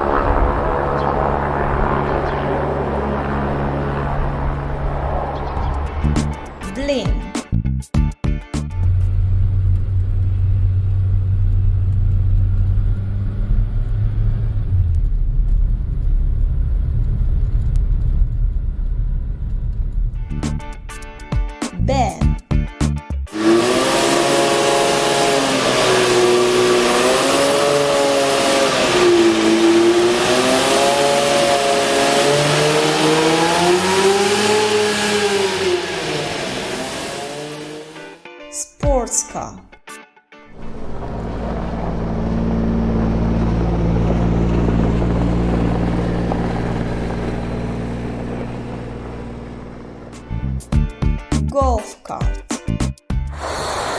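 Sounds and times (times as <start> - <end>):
airship engines humming: 0.0 - 7.3, 23.3 - 38.2, 40.6 - 50.7
deep engine rumble: 0.0 - 21.3, 40.6 - 51.5.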